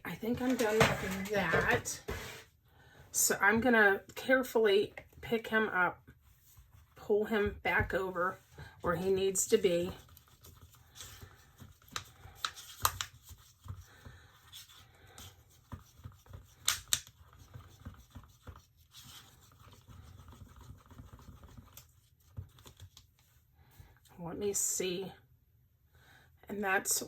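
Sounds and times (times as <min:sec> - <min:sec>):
light clicks taps and scrapes: 0:00.3 - 0:02.2.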